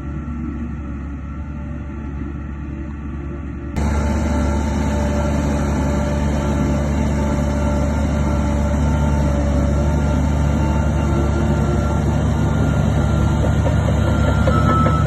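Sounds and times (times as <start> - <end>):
heavy diesel machinery running: 0.0 - 15.0.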